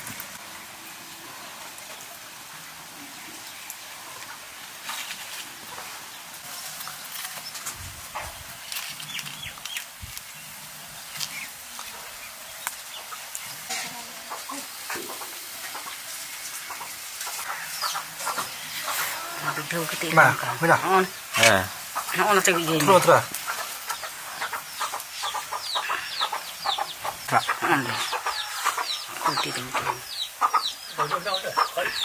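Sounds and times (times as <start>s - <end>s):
steady hiss: 0.0s - 32.0s
chickens clucking: 1.2s - 32.0s.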